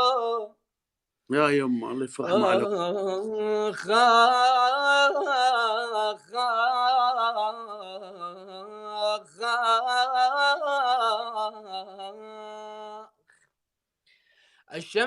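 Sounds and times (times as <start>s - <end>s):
man singing unaccompanied: 0.0s - 0.6s, 1.9s - 13.1s.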